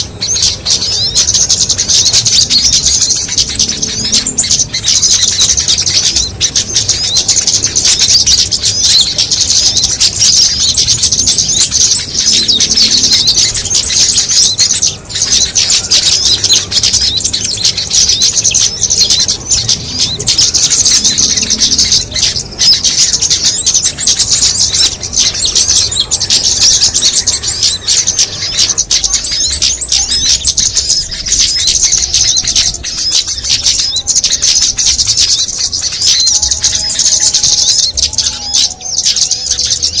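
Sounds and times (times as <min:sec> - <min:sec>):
many small birds twittering: 0:00.0 - 0:40.0.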